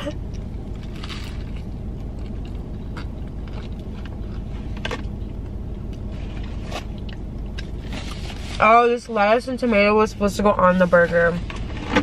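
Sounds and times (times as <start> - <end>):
chewing with soft crunches: 0.0 - 8.2
low car cabin rumble: 0.0 - 12.0.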